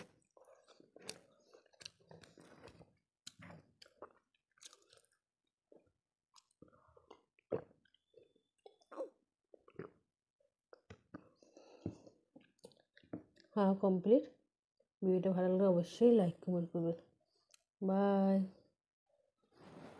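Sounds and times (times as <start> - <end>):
wet chewing sounds: 0.0 - 13.6.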